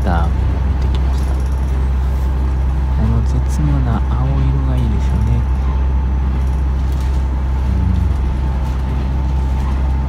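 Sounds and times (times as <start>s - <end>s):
engine and wheel rumble: 0.0s - 10.0s.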